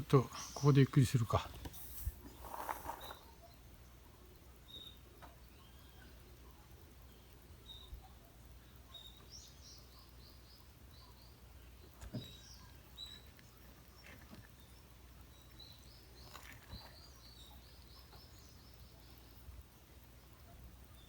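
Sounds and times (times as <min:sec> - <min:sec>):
faint high bird chirps: 0:04.6 - 0:19.5.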